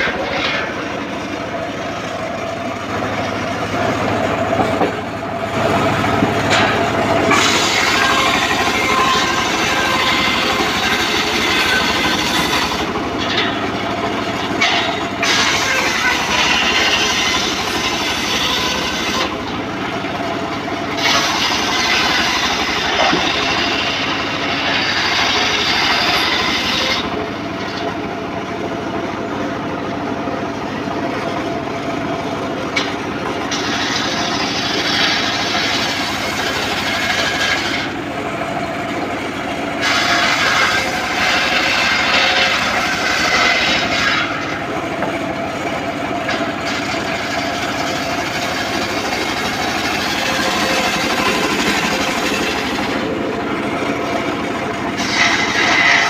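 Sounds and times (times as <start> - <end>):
circular saw cutting wood: 0.0 - 56.0.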